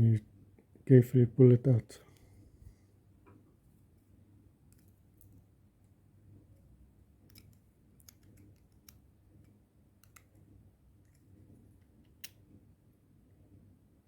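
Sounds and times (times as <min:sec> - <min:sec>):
plastic parts clicking: 0:07.2 - 0:09.0.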